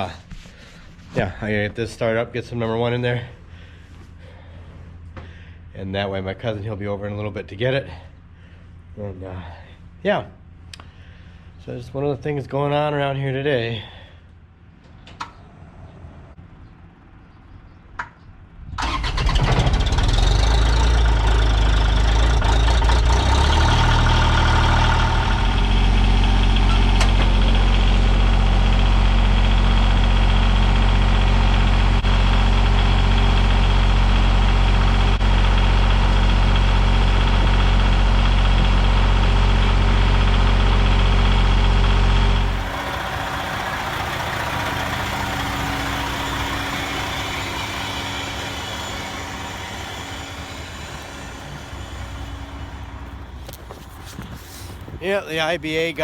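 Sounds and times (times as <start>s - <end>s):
diesel engine starting and idling: 18.6s - 56.0s.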